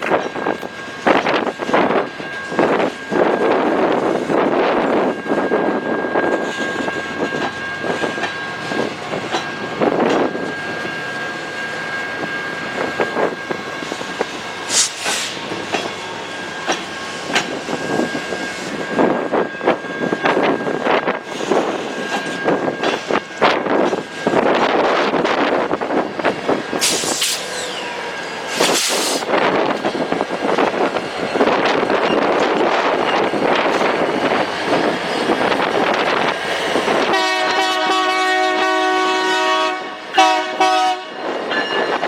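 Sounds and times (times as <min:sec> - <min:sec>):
train wheels rumbling on rails: 0:00.0 - 0:42.0
sharp hiss: 0:14.6 - 0:15.5, 0:26.8 - 0:27.8, 0:28.5 - 0:29.3.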